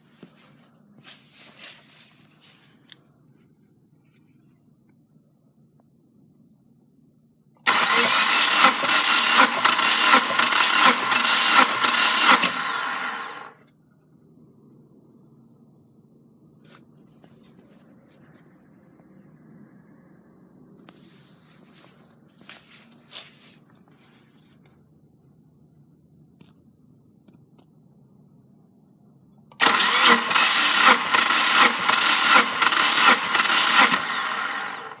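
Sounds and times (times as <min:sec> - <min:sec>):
car engine starting and running: 0:07.7 - 0:13.5, 0:29.6 - 0:35.0.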